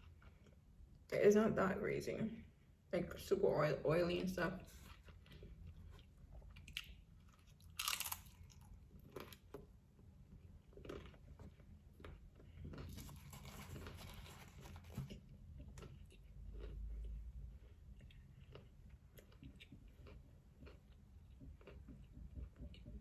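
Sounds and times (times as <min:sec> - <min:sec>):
taco crunching: 0:04.7 - 0:22.0
person chewing wetly: 0:04.8 - 0:09.7, 0:10.3 - 0:23.0.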